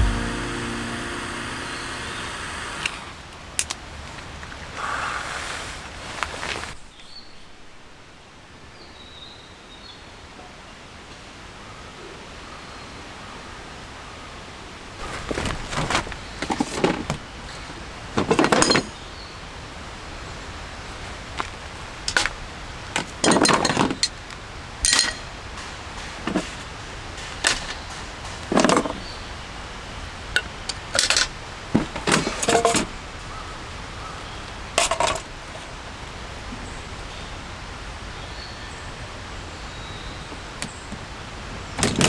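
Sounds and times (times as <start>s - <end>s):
metal and glass objects clinking: 18.3s - 19.0s, 23.0s - 24.2s, 24.9s - 26.6s.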